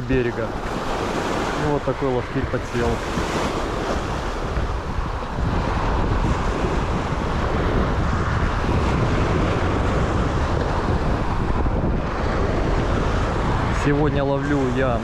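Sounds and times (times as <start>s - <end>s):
surf breaking on shore: 0.0s - 15.0s
wind buffeting microphone: 0.0s - 15.0s.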